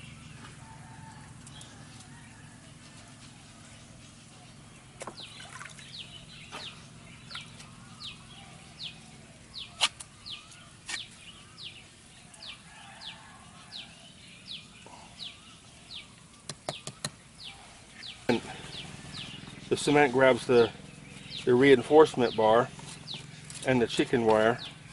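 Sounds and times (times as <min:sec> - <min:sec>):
bird calling: 0:00.0 - 0:24.9
sharp taps: 0:16.5 - 0:17.2.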